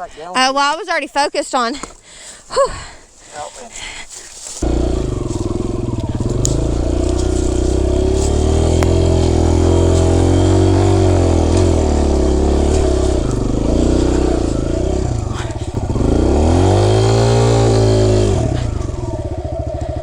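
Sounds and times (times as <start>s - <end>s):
dirt bike engine revving: 4.6s - 20.0s.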